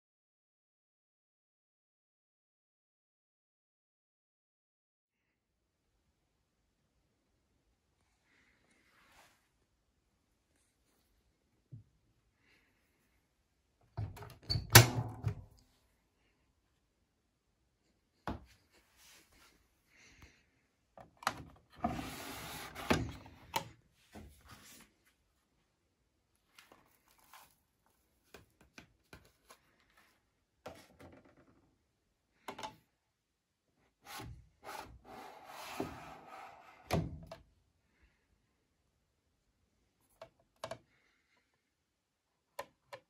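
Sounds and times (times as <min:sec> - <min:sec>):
knocks and clicks on washing machine: 0:14.0 - 0:15.5.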